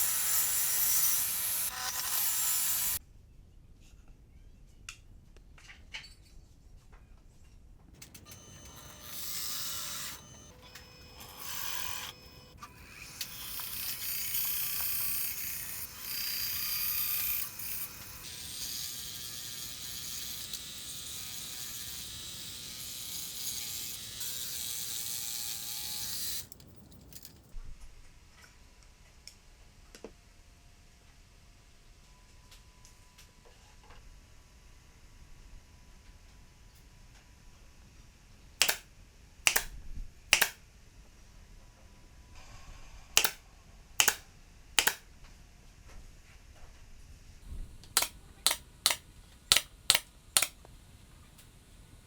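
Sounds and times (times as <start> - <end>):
small electric motor whirring: 0.0 - 3.0, 8.0 - 26.6, 38.6 - 38.8, 43.2 - 43.4, 44.0 - 44.2, 44.8 - 45.0.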